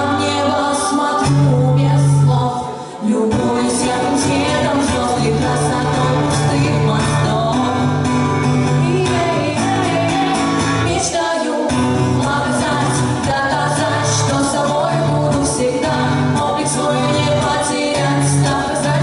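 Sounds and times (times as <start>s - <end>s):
women singing: 0.0s - 19.0s.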